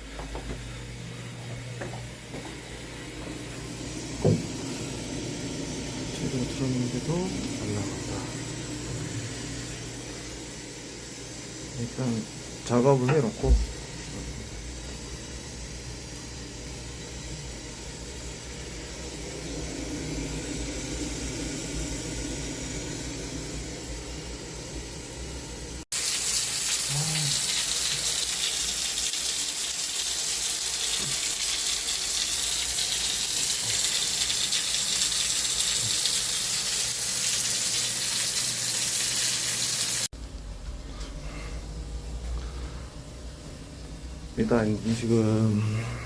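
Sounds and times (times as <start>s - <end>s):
water running from a tap: 25.9s - 40.1s.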